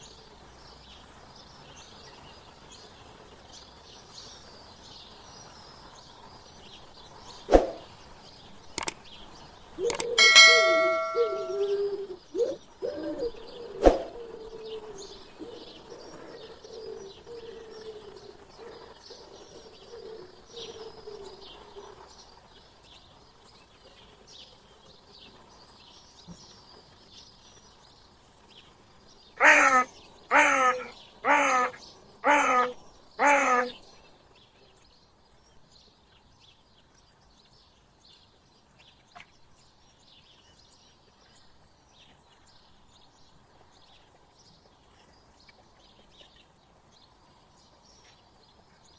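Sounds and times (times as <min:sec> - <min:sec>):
small birds chirping: 0:00.0 - 0:12.6, 0:13.2 - 0:48.9
sharp clicks: 0:08.8 - 0:09.0, 0:09.8 - 0:10.2
loud calls: 0:09.9 - 0:11.9
ringing metallic clang: 0:10.0 - 0:11.9.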